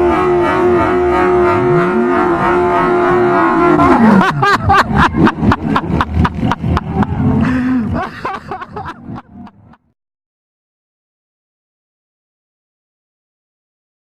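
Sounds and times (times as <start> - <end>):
motorcycle engine high note: 0.0 - 4.2
sharp exhaust bangs: 0.0 - 8.0.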